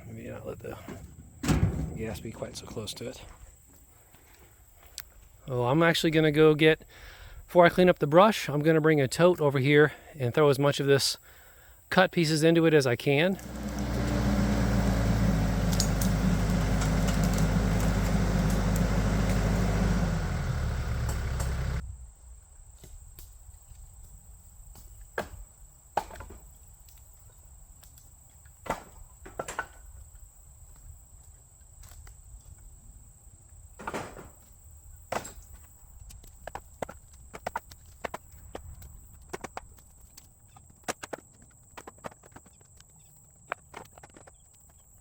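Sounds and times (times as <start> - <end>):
tractor engine running: 0.1 - 3.2, 13.4 - 21.8
wood pieces knocking: 13.8 - 21.8.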